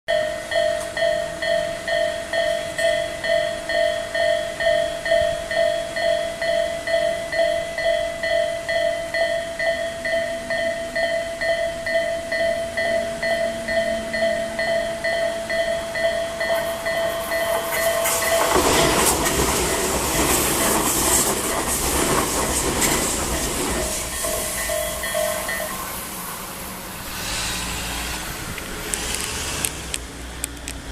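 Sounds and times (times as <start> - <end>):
level crossing bell ringing: 0.1 - 20.0, 23.7 - 26.2
train wheels clacking over rail joints: 15.5 - 30.9.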